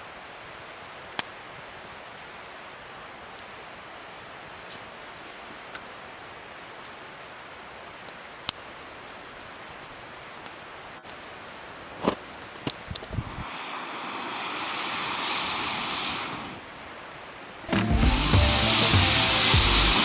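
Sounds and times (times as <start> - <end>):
wood fire crackling and popping: 0.4 - 20.0.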